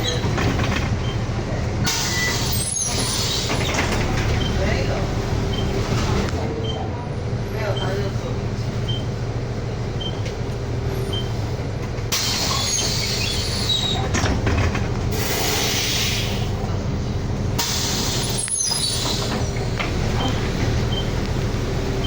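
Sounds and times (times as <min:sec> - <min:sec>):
bus engine hum inside cabin: 0:00.0 - 0:22.0
short high squeaks: 0:02.0 - 0:03.8, 0:12.2 - 0:14.0, 0:18.0 - 0:19.6
road and air noise hiss: 0:15.1 - 0:20.0.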